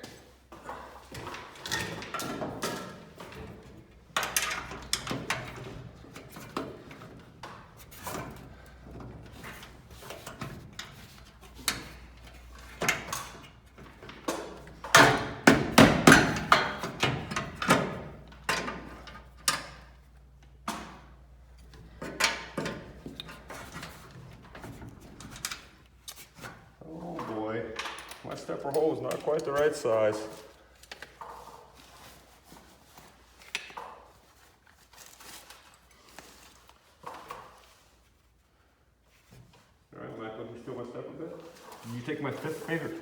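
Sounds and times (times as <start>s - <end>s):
metal knocks and clanks of tools: 0.5s - 31.6s.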